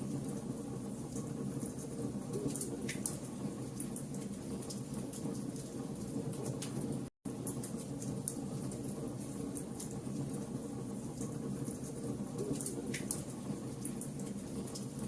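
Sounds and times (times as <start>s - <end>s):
fire crackling and rumbling: 0.0s - 15.0s.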